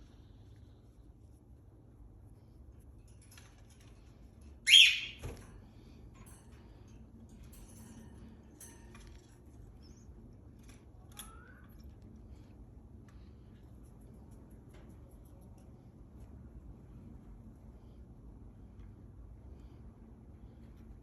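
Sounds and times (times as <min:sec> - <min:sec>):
cockatiel loud call: 0:04.7 - 0:05.2
cockatiel soft chirps: 0:04.7 - 0:05.2.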